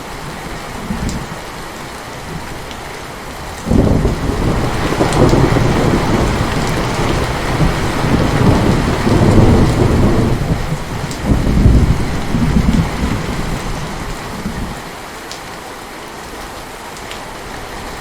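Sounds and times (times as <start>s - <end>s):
heavy rain falling: 0.0s - 18.0s
rolling thunder: 3.7s - 14.8s.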